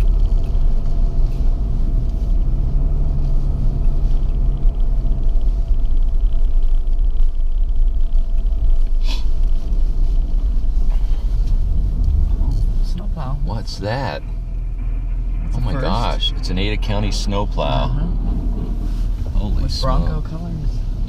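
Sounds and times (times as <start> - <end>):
car cabin road rumble: 0.0 - 21.0
faint hum: 10.8 - 21.0.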